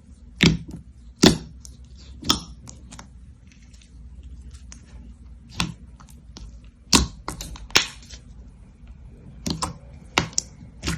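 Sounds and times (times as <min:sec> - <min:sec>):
slime crackling and popping: 0:05.5 - 0:08.2, 0:09.4 - 0:10.9.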